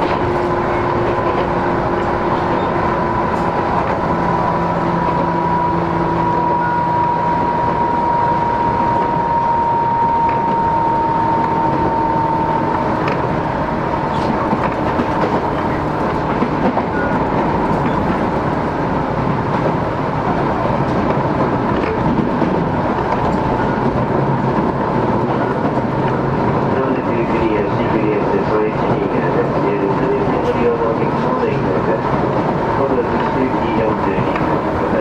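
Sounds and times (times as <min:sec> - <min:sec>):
electric train high whine: 0:00.0 - 0:26.8
wheels rumbling on rail: 0:00.0 - 0:35.0.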